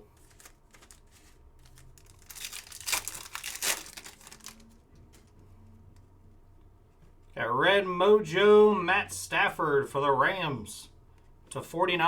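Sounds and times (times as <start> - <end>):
wrapper tearing and crinkling: 0.1 - 5.2.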